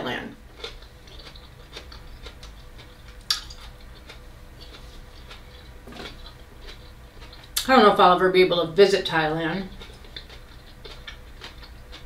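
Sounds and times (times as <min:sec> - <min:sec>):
steady low hum: 0:00.0 - 0:12.0
chewing raw vegetables: 0:00.5 - 0:07.7, 0:09.6 - 0:12.0.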